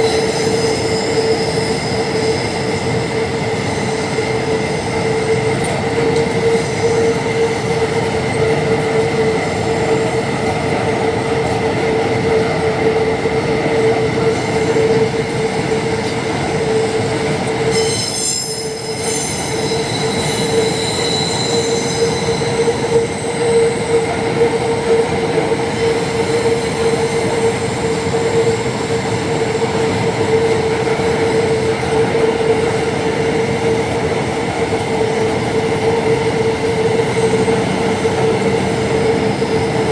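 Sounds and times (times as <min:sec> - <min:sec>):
freight train rumbling by: 0:00.0 - 0:39.9
high-pitched shriek: 0:17.7 - 0:24.0.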